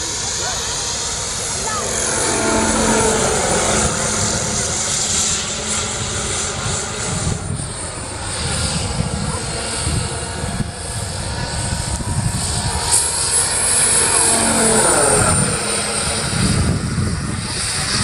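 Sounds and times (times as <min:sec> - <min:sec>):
model turbine engine whine: 0:00.0 - 0:18.0
rotor fluttering: 0:00.8 - 0:18.0.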